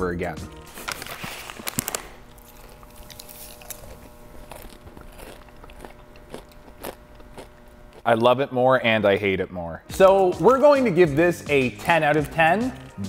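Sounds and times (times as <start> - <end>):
plastic snack bag crinkling: 0.7 - 8.1
chewing crunchy popcorn: 0.7 - 8.2.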